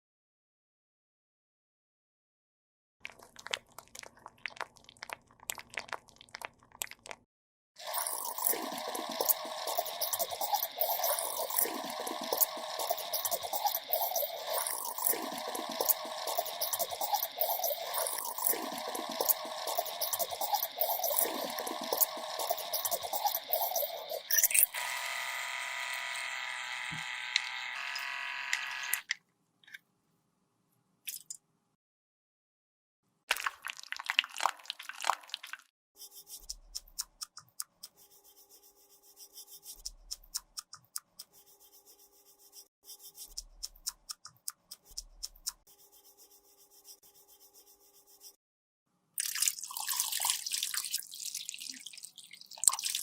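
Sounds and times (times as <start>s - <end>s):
small electric motor buzzing: 7.9s - 29.1s.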